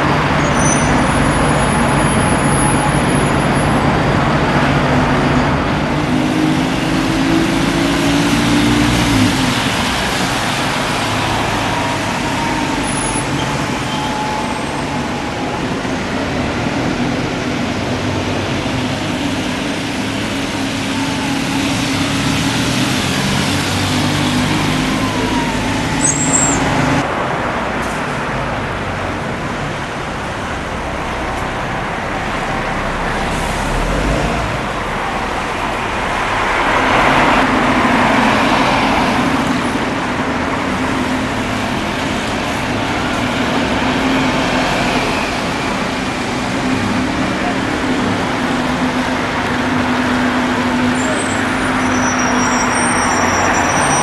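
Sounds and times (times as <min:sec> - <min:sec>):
vehicles passing: 0:00.0 - 0:54.0
engine humming: 0:27.9 - 0:51.2.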